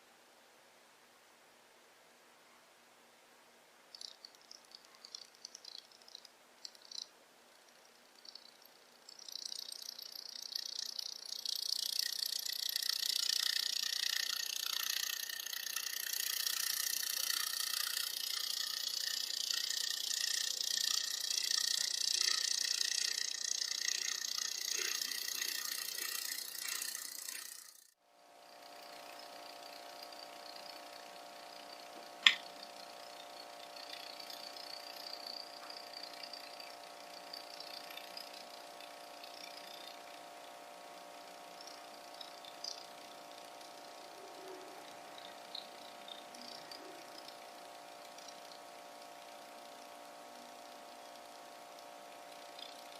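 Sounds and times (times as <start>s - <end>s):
quiet steady hum: 0.0s - 52.9s
geared mechanism whirring and rattling: 3.9s - 52.9s
sharp click: 32.0s - 32.6s.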